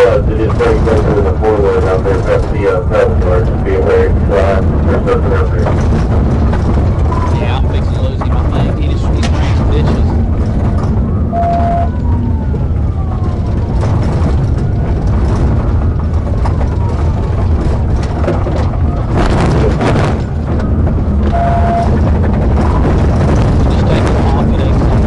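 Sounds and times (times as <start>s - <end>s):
car engine and road noise: 0.0s - 25.0s
siren wailing: 10.4s - 19.6s, 20.3s - 23.1s
short beeps: 11.3s - 11.9s, 21.3s - 22.0s.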